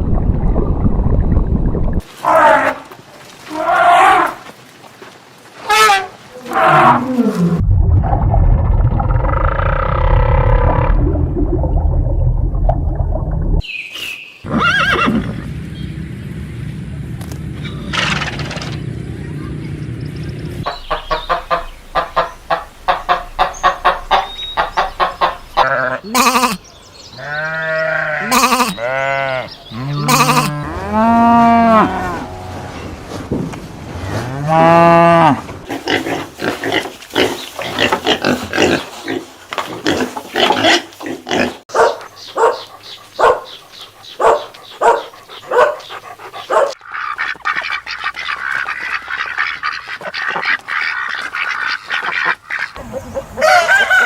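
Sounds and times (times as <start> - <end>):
farm animals calling: 20.6 - 32.9, 40.4 - 54.0.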